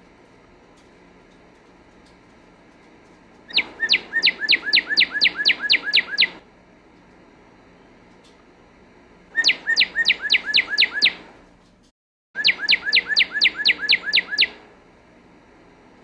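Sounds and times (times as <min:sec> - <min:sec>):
cardinal singing whistles: 0:03.5 - 0:06.4, 0:09.4 - 0:11.2, 0:12.4 - 0:14.6.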